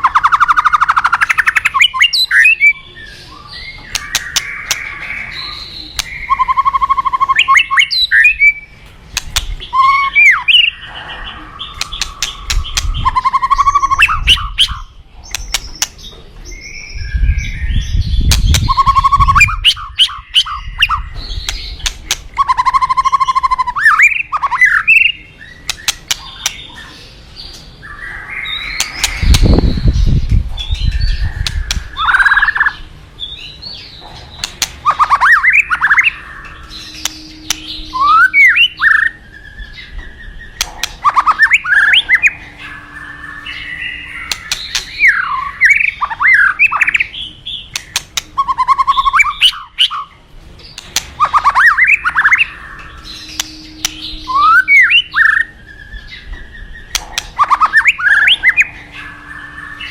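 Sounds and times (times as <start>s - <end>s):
bird singing whistles: 0.0s - 8.7s, 9.6s - 10.8s, 11.6s - 15.8s, 16.5s - 26.9s, 34.8s - 50.1s, 50.8s - 59.9s
bird clicking notes: 3.9s - 5.0s, 9.1s - 9.8s, 11.7s - 16.0s, 20.4s - 23.5s, 25.6s - 26.7s, 34.4s - 38.4s, 40.6s - 42.2s, 44.2s - 45.0s, 47.7s - 50.0s, 50.7s - 54.8s, 56.9s - 58.5s.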